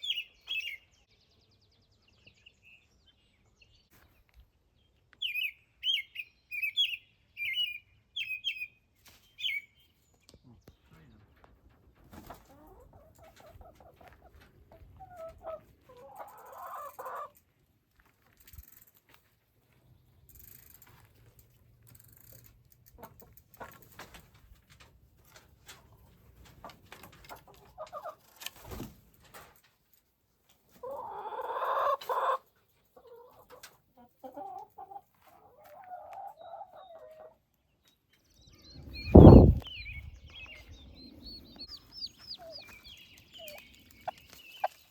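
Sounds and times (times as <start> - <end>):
clucking bird calls: 12.2 - 17.4, 25.7 - 28.5, 30.7 - 37.5, 38.8 - 44.9
small clicks and rustles: 17.3 - 19.4, 20.2 - 30.6.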